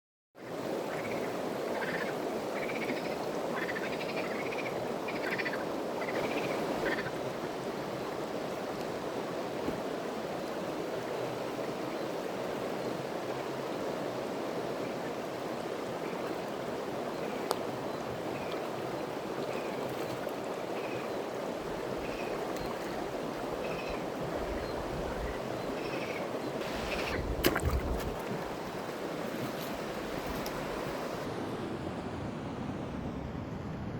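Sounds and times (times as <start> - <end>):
flowing water rushing: 0.4 - 31.3.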